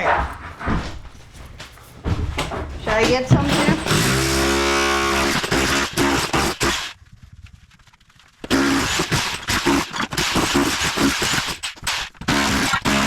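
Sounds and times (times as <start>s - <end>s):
rotary hammer breaking tile: 3.3s - 6.8s.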